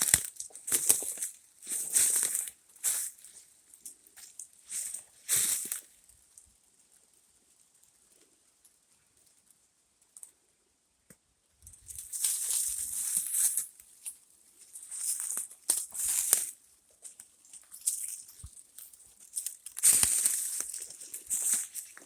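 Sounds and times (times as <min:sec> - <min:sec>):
footsteps crunching dry leaves: 0:00.0 - 0:03.4, 0:04.2 - 0:05.9, 0:11.8 - 0:13.8, 0:14.7 - 0:16.6, 0:17.6 - 0:22.0.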